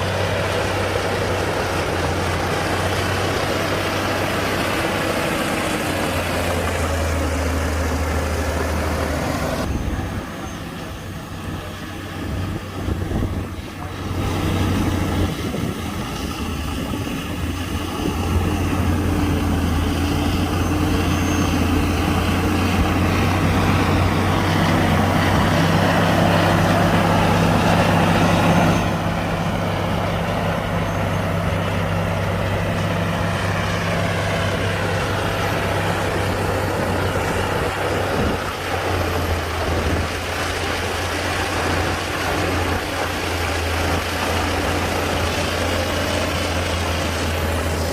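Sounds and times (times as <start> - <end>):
diesel earthmoving machinery: 0.0 - 47.9.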